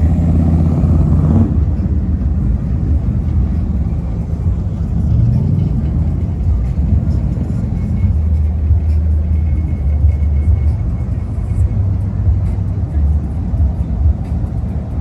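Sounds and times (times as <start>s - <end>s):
deep low car rumble: 0.0s - 15.0s
music: 0.0s - 15.0s
voices: 1.6s - 15.0s.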